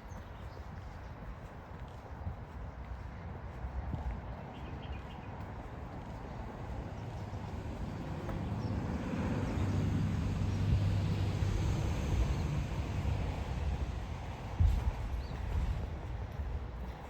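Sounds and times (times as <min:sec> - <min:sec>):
car passing by: 0:07.4 - 0:15.8.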